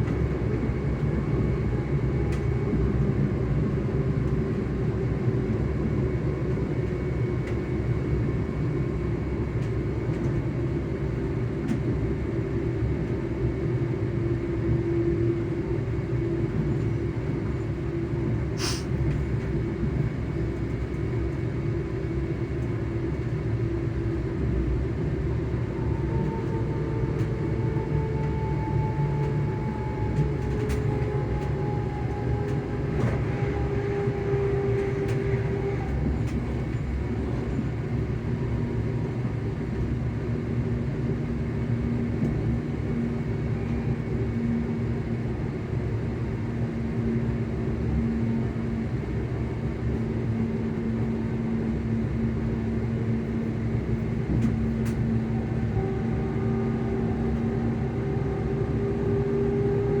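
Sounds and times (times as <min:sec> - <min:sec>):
train rumbling on rails: 0:00.0 - 1:00.0.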